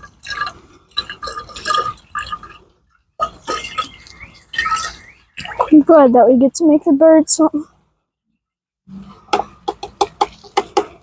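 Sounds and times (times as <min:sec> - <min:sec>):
liquid glugging while poured: 0:00.0 - 0:05.7.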